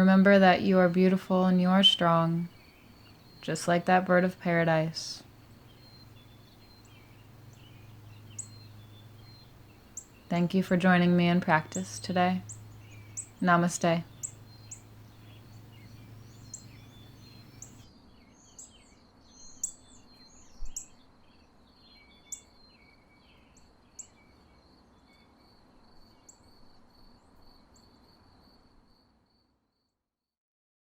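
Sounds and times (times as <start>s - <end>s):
birds chirping: 0.0s - 17.8s
low hum: 0.0s - 17.8s
faint high-pitched tone: 13.4s - 14.3s.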